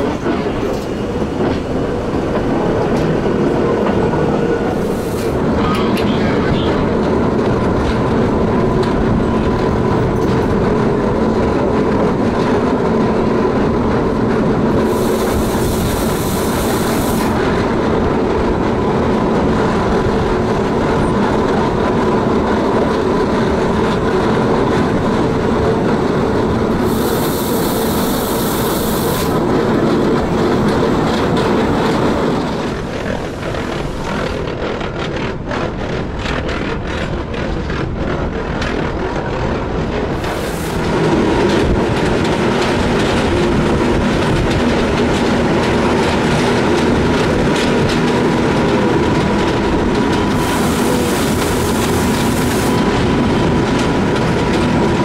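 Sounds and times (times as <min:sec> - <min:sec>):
train motor and gear hum: 0:00.0 - 0:55.0.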